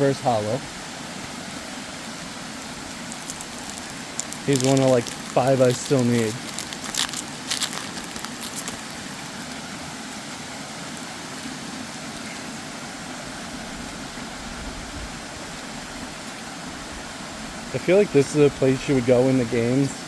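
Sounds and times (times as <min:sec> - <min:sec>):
waterfall rushing: 0:00.0 - 0:12.0
faint crackles: 0:02.7 - 0:09.6.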